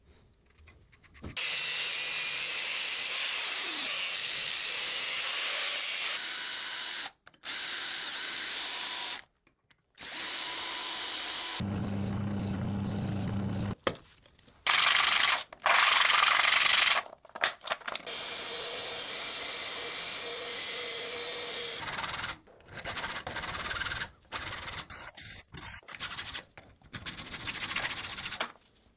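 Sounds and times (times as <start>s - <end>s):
deep motor hum: 11.6s - 13.8s.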